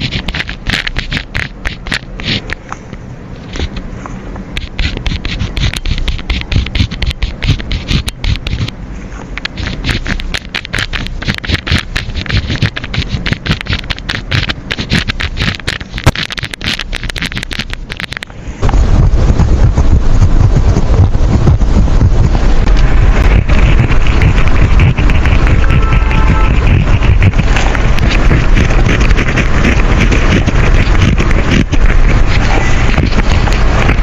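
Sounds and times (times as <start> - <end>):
pen scratching on paper: 0.0 - 2.7, 3.4 - 3.9, 4.5 - 8.8, 9.4 - 18.3, 19.8 - 34.0
low rushing noise: 0.0 - 34.0.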